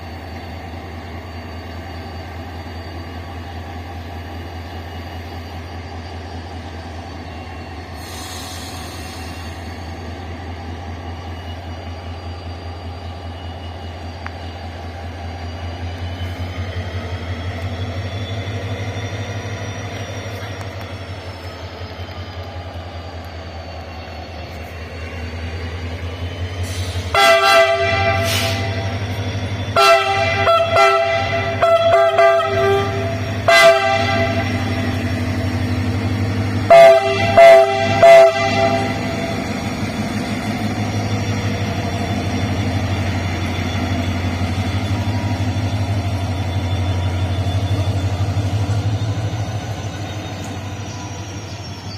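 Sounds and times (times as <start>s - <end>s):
diesel locomotive droning: 0.0s - 51.9s
locomotive horn blasts and toots: 27.0s - 28.9s, 29.7s - 35.0s, 36.6s - 39.3s.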